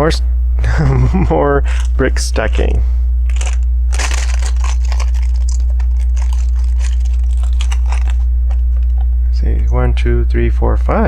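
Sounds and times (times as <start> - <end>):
low electrical hum: 0.0 - 11.0
plastic bricks clicking and rattling: 3.3 - 8.2.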